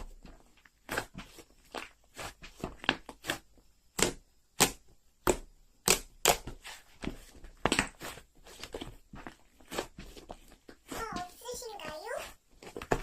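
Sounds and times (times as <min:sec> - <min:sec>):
slime squishing and popping: 0:00.7 - 0:06.6, 0:07.5 - 0:11.0.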